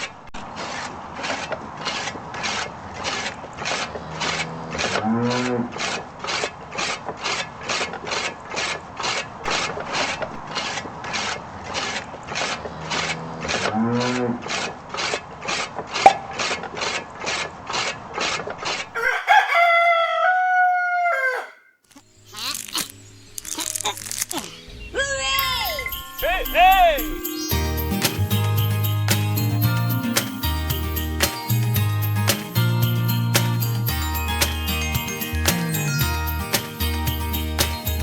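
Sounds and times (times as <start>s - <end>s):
rooster crowing: 19.0s - 21.8s
rhythmic rasping strokes: 25.4s - 38.0s.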